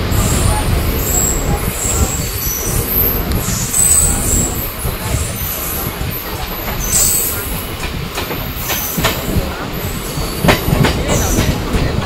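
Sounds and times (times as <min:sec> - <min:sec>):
train wheels rumbling on track: 0:00.0 - 0:12.0
wheels clacking over rail joints: 0:00.0 - 0:12.0
high wheel squeal: 0:00.2 - 0:07.4.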